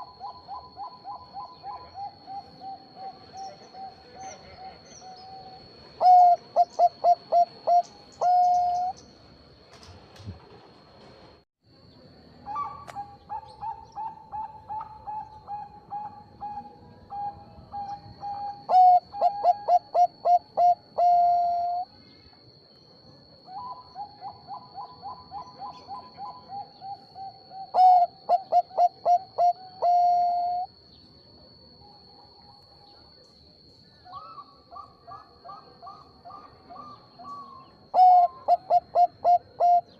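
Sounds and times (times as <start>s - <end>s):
dove cooing: 0.0s - 8.9s, 12.5s - 21.9s, 23.5s - 30.7s, 34.1s - 39.9s
faint high whine: 0.0s - 39.9s.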